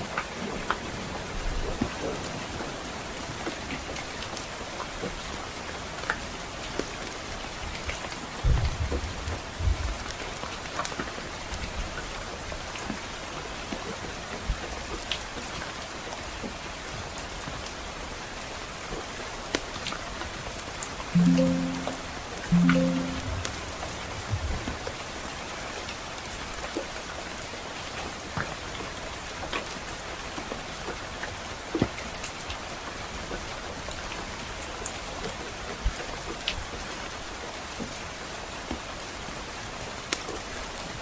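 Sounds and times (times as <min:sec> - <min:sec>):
soft rain: 0:00.0 - 0:41.0
low musical note: 0:21.2 - 0:23.8.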